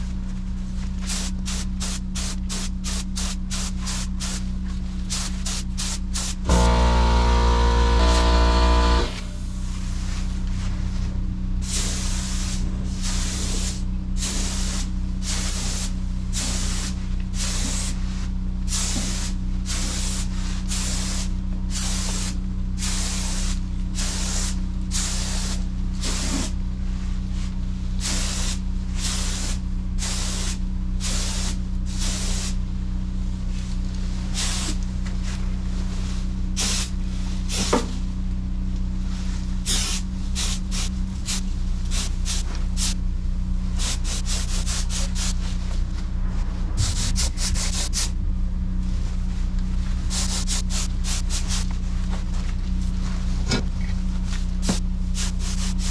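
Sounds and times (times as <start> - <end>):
steady low hum: 2.4 - 18.8, 38.1 - 55.9
spray gun hissing: 5.1 - 9.7, 39.7 - 43.0, 50.1 - 51.6.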